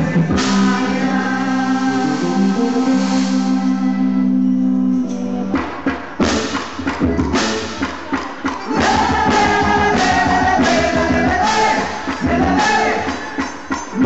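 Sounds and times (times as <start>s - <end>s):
person singing: 0.0s - 5.8s, 8.6s - 14.0s
live band music: 0.0s - 14.0s.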